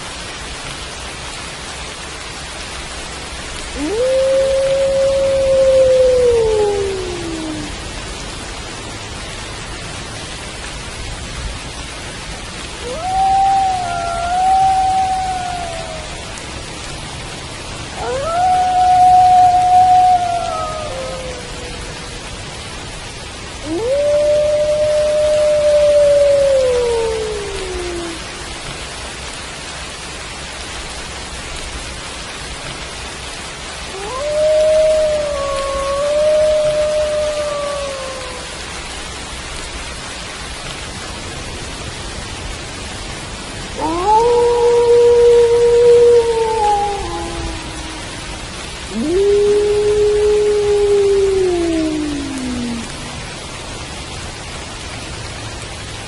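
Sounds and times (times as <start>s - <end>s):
steady rainfall: 0.0s - 56.0s
wolves howling: 3.8s - 7.8s, 12.8s - 16.4s, 17.9s - 22.3s, 23.6s - 28.4s, 33.9s - 38.7s, 43.8s - 53.3s.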